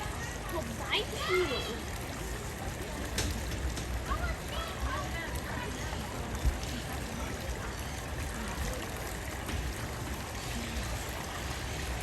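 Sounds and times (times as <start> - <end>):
running water: 0.0 - 12.0.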